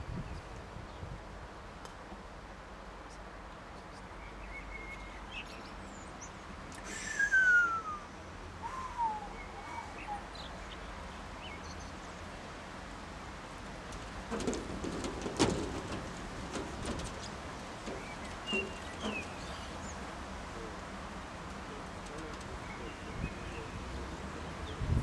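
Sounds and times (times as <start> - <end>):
bird whistling: 6.9 - 10.2
knocks: 14.3 - 19.4.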